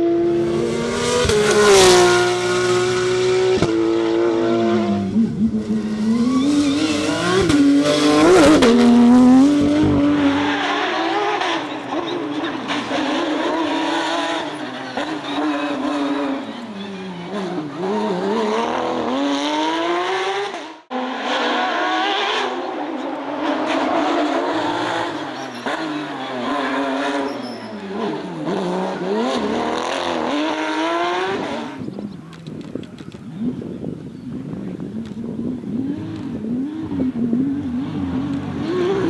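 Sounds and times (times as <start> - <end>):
car engine accelerating and braking: 0.0 - 39.0.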